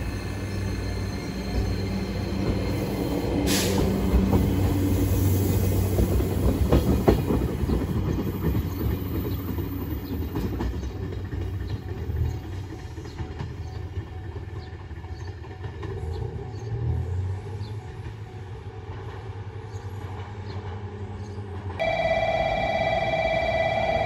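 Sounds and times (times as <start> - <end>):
diesel railcar rumbling: 0.0 - 24.0
electronic chime of held tones: 21.8 - 24.0.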